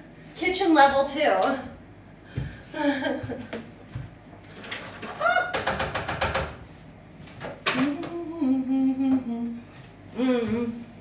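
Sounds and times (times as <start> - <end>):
woman humming: 7.8 - 11.0.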